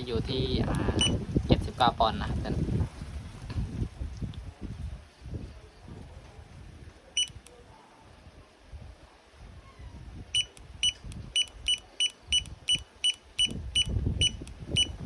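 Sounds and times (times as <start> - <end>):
torque wrench beeping: 1.0 - 1.2, 7.2 - 7.4, 10.4 - 15.0.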